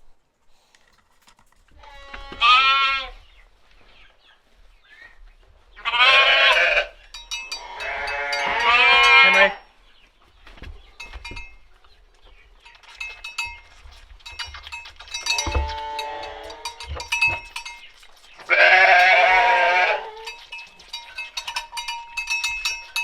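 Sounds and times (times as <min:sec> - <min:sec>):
sheep bleating: 0:01.8 - 0:03.2, 0:05.8 - 0:09.6, 0:15.3 - 0:16.8, 0:18.5 - 0:20.3.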